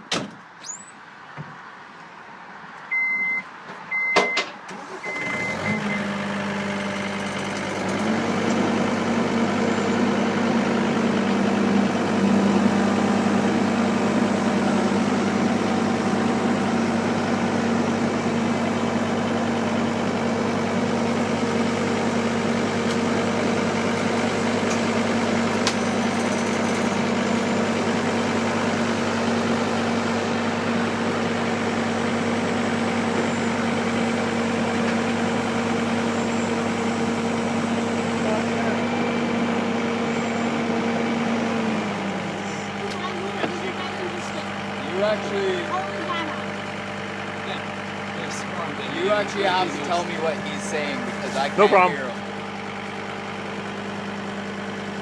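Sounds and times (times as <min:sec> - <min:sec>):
short electronic beeps: 0:02.9 - 0:04.4
loader engine running: 0:02.9 - 0:55.0.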